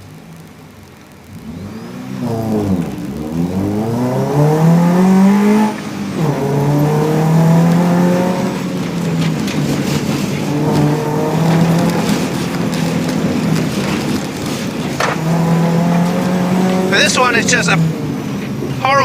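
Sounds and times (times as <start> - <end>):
car engine revving inside cabin: 0.0 - 19.0.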